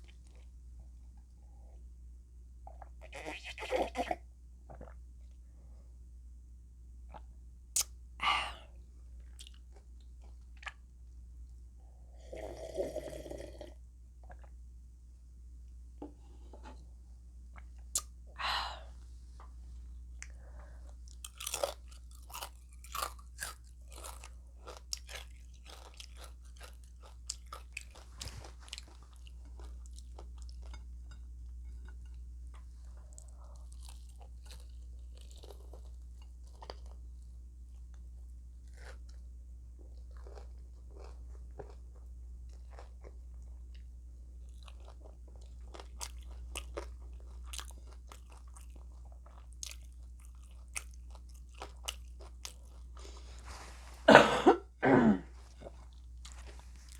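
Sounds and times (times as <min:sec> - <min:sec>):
person chewing crunchy food: 0:20.2 - 0:54.1, 0:55.3 - 0:56.9.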